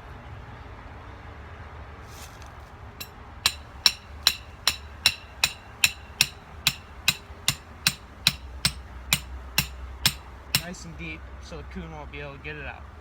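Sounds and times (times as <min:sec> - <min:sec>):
hammer striking stake: 0:03.5 - 0:10.8.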